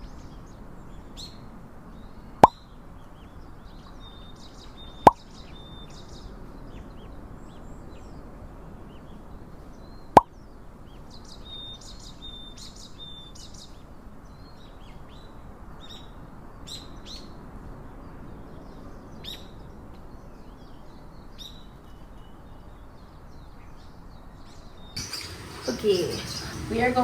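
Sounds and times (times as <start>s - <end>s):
birds chirping and calling: 25.0s - 27.0s
low background hiss: 25.0s - 27.0s
whistled bird notes: 25.0s - 27.0s.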